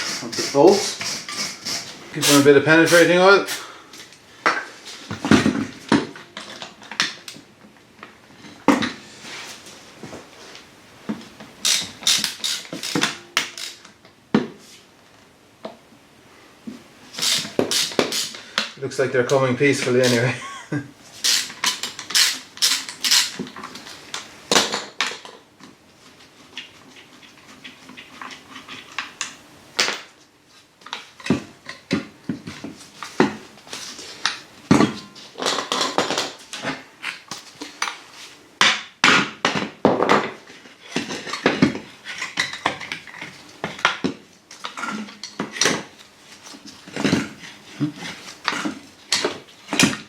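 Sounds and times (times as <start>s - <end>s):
hand tools clinking on steel parts: 21.2s - 23.4s.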